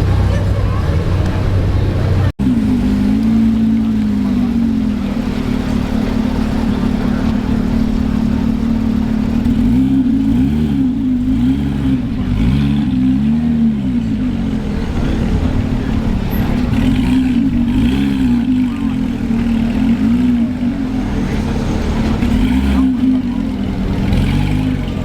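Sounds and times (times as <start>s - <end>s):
car engines revving: 0.0s - 25.0s
steady low rumble: 13.6s - 24.0s.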